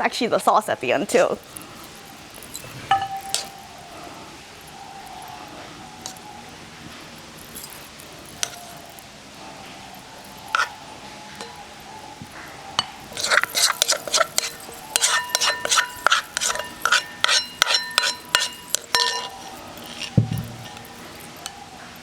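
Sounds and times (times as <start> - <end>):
spoon clinking against mortar: 1.1 - 21.7
dull thump: 20.2 - 20.7.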